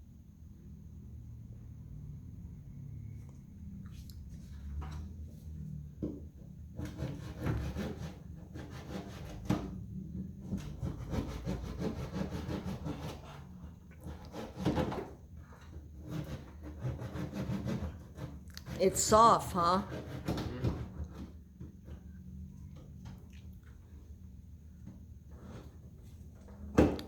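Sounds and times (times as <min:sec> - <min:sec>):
hand saw rasping: 0:06.7 - 0:09.8, 0:10.5 - 0:19.2, 0:19.8 - 0:21.3.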